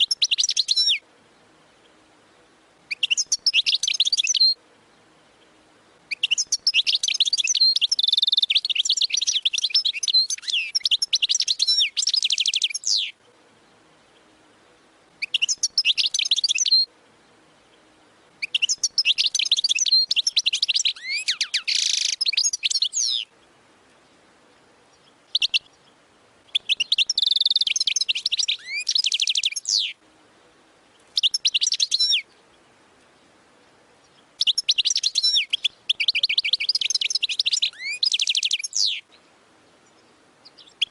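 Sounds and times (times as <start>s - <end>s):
bird twittering and trilling: 0.0s - 1.0s, 2.9s - 4.6s, 6.1s - 13.3s, 15.2s - 16.9s, 17.6s - 24.2s, 24.9s - 30.0s, 30.9s - 32.7s, 34.0s - 40.9s.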